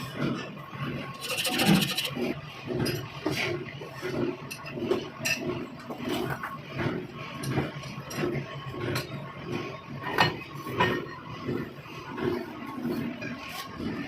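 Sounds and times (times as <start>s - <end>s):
rhythmic rasping strokes: 1.1s - 2.4s.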